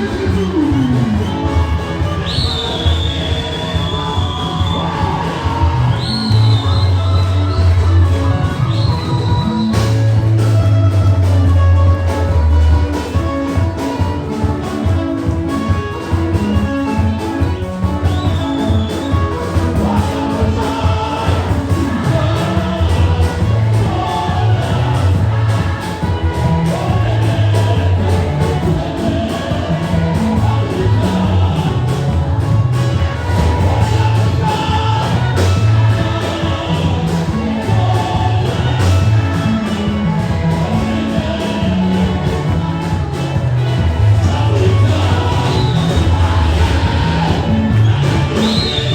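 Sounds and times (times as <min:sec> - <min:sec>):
church band music with heavy bass: 0:00.0 - 0:48.9
steady drum beats: 0:00.0 - 0:48.9
person singing: 0:18.6 - 0:48.9.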